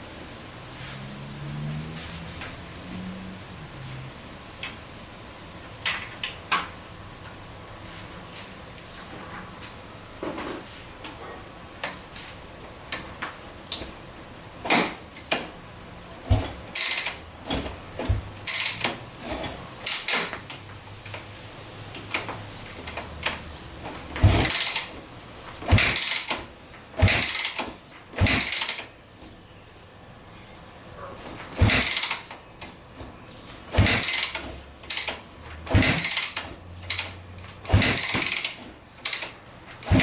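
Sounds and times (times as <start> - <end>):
engine kick-start turning over: 16.2 - 21.2, 21.9 - 25.0, 25.6 - 28.9, 31.4 - 32.4, 33.6 - 40.0.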